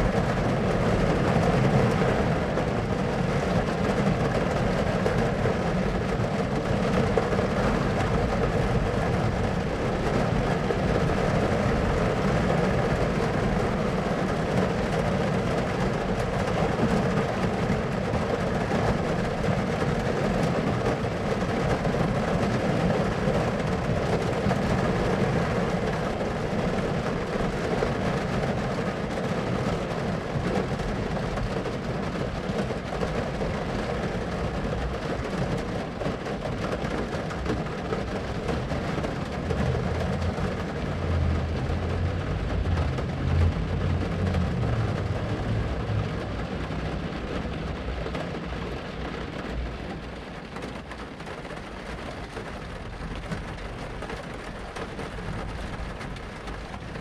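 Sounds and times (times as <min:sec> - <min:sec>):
rain falling: 0:00.0 - 0:57.0
thunder rumbling: 0:37.4 - 0:50.0.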